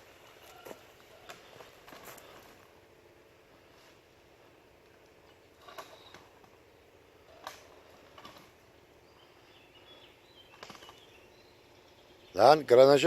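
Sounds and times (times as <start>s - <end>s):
faint bird chirps: 5.6s - 6.4s, 9.0s - 12.6s.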